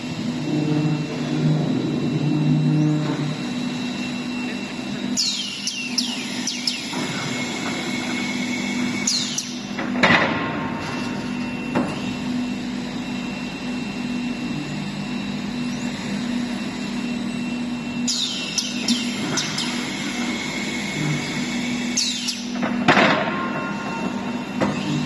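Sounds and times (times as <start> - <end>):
woodworking machinery humming: 0.0 - 25.0.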